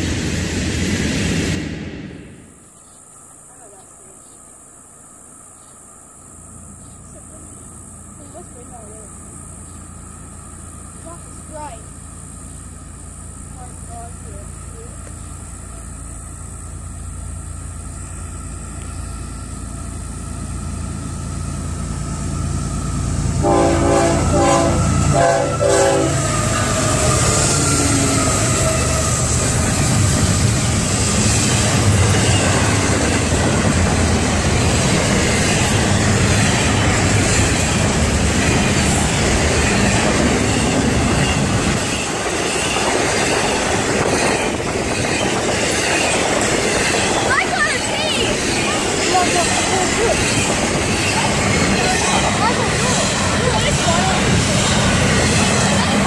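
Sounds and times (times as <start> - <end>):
train rumbling past: 0.0 - 56.0
train wheels on rails: 0.0 - 56.0
locomotive horn: 23.4 - 29.4.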